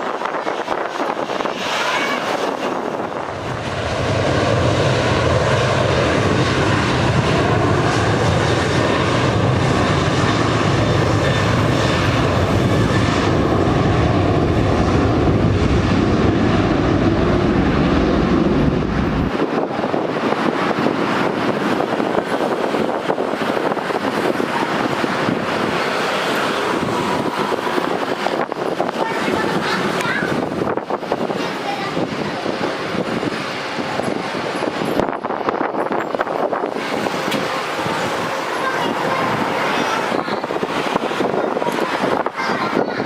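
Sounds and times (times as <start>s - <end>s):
jet engines rushing: 0.0s - 43.0s
deep engine rumble: 0.1s - 34.4s.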